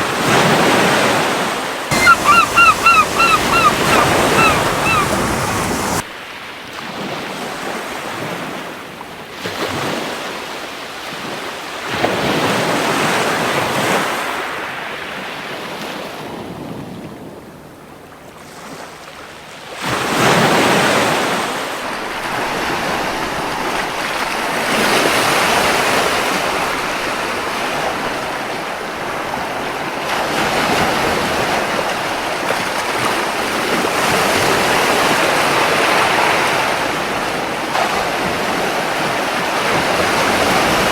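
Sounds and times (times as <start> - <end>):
ocean waves breaking on beach: 0.0 - 6.0, 19.9 - 40.9.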